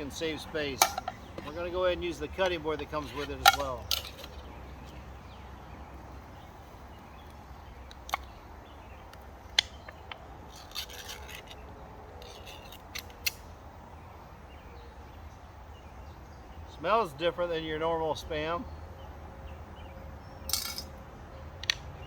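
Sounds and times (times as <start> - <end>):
steady background hiss: 0.0 - 22.0
metal cookware clicks and knocks: 0.8 - 1.2.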